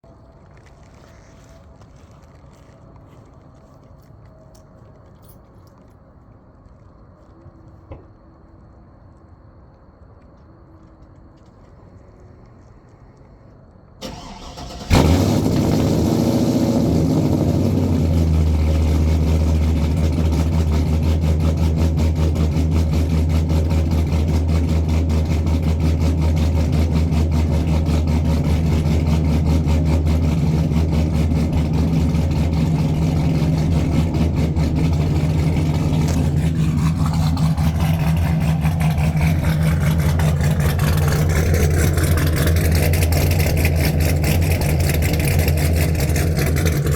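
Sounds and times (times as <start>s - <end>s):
truck engine starting and idling: 14.0s - 46.9s.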